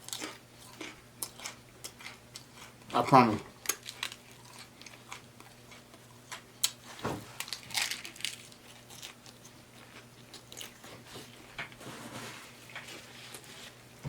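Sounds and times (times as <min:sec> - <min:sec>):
crunchy chewing: 0:00.0 - 0:02.9, 0:03.5 - 0:11.4.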